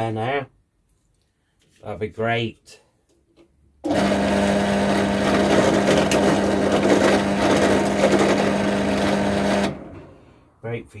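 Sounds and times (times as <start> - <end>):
electric motor running: 3.9 - 10.0.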